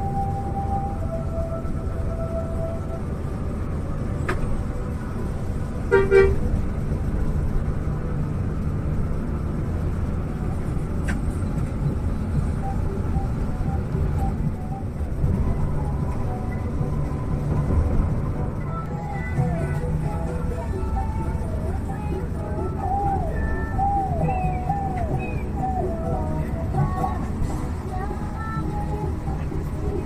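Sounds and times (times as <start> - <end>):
coach engine and road rumble: 0.0 - 30.0
vehicle horn toot: 5.9 - 6.5.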